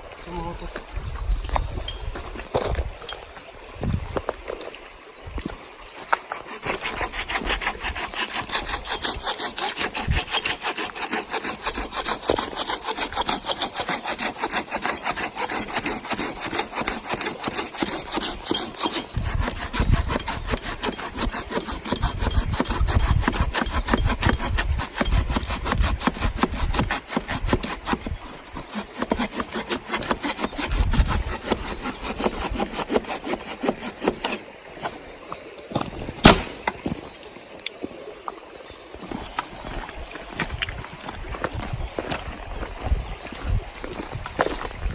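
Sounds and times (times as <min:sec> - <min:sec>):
hand saw cutting wood: 0:06.0 - 0:35.0, 0:36.2 - 0:37.0.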